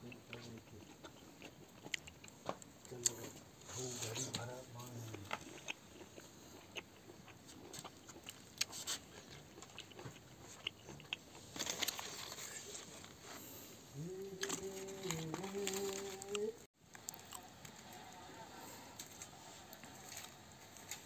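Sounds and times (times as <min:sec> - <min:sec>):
wet chewing clicks and smacks: 0:00.0 - 0:03.2, 0:04.3 - 0:11.5
person humming a tone: 0:14.0 - 0:16.6.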